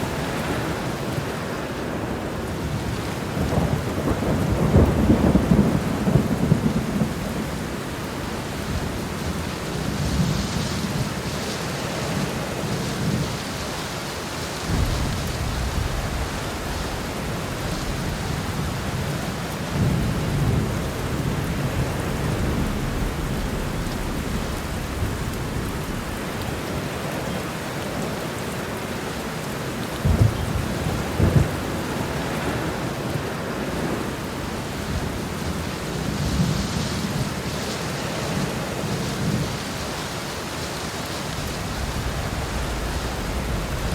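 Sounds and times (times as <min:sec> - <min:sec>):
heavy rain pouring: 0:00.0 - 0:43.9
thunder rumbling: 0:02.1 - 0:11.3, 0:14.6 - 0:28.1, 0:30.0 - 0:39.6, 0:41.4 - 0:43.9
sharp thunder claps: 0:14.7 - 0:27.1, 0:30.0 - 0:31.8, 0:41.6 - 0:43.9.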